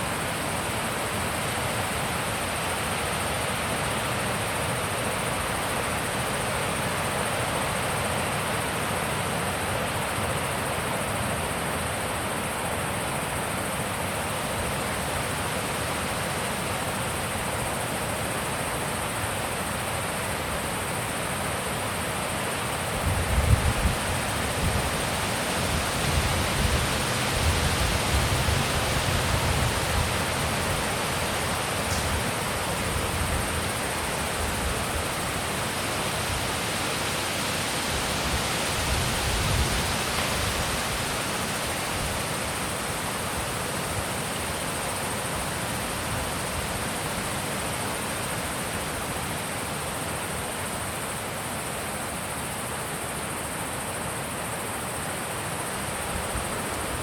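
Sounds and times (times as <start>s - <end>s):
wind gusting against microphone: 22.9s - 42.8s.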